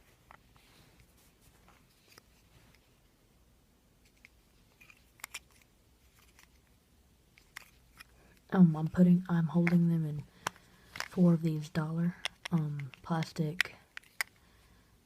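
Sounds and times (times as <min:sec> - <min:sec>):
plastic capsules clicking: 0:04.1 - 0:06.5, 0:07.4 - 0:08.2, 0:09.6 - 0:14.4.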